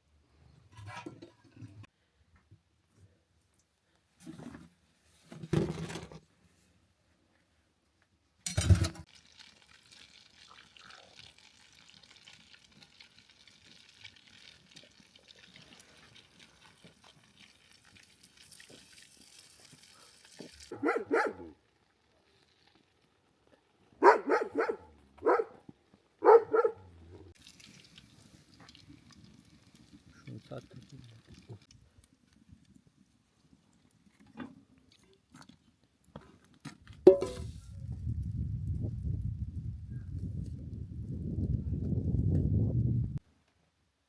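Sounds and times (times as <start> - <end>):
dog barking: 20.7 - 21.6, 24.0 - 25.6, 26.2 - 26.9.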